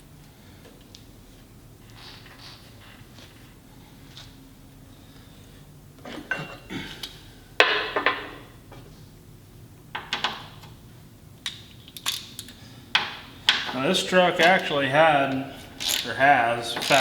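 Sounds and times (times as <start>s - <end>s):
metal clanking and clinking: 13.5s - 17.0s.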